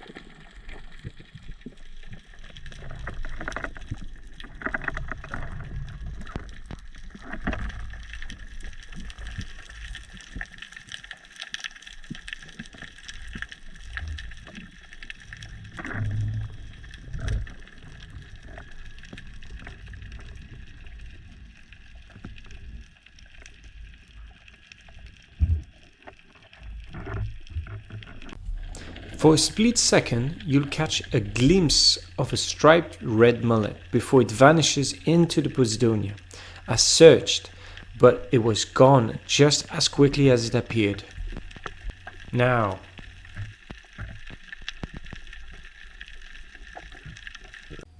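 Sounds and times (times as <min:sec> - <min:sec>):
water rushing and gurgling underwater: 0:00.0 - 0:47.8
faint steady hum: 0:28.4 - 0:43.4.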